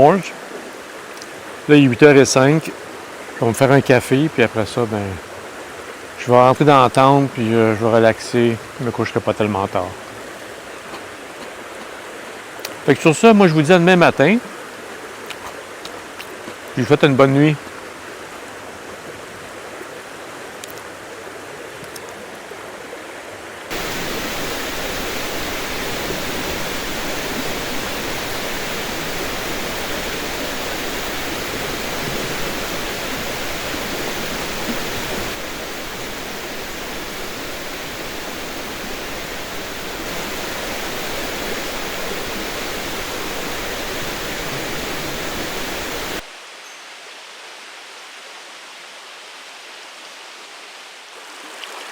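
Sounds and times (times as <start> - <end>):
steady rushing noise: 23.7 - 46.3.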